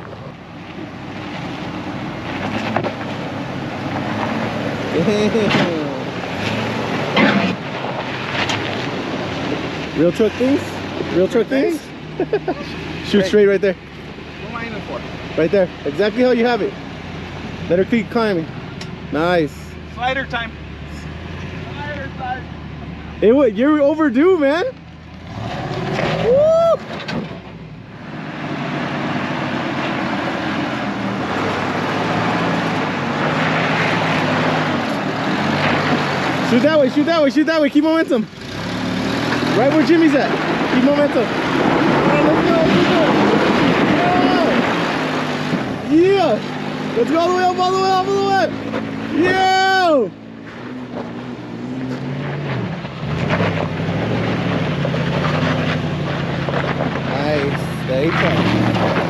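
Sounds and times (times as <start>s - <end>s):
truck engine under throttle: 0.0s - 59.0s.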